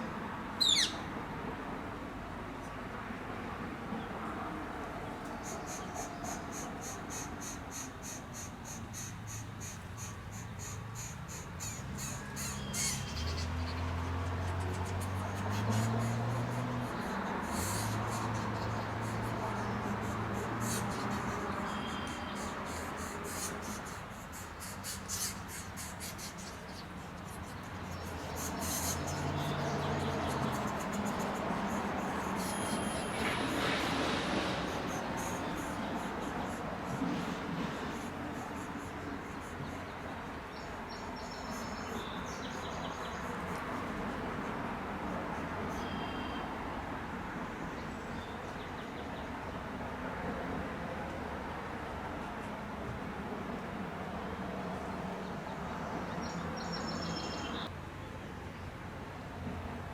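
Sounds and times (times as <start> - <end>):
insects calling in rapid pulses: 0.6 - 1.0, 5.3 - 46.3.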